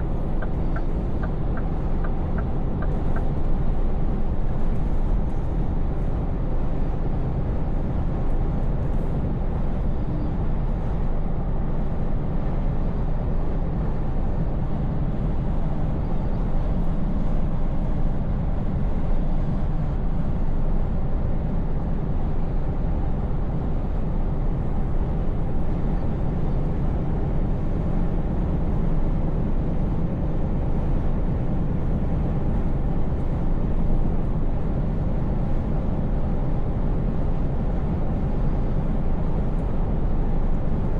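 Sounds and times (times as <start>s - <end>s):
truck engine humming: 0.0s - 5.9s.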